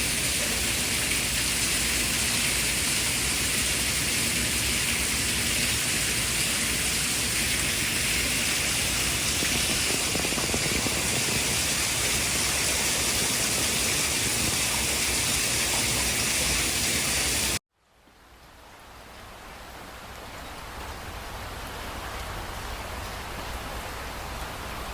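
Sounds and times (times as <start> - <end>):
loud white noise: 0.0 - 17.6.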